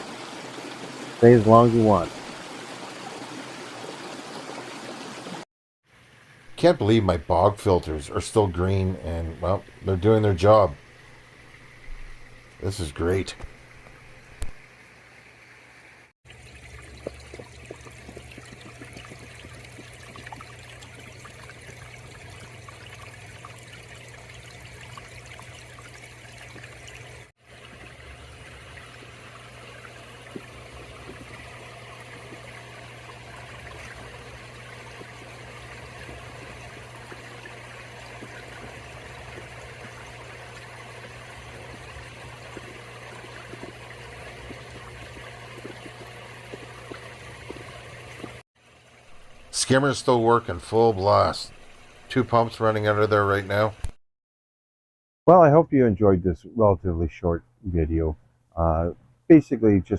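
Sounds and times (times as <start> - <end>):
water splashing over rocks: 0.0 - 5.4, 16.3 - 52.3
constant low hum: 16.3 - 53.7.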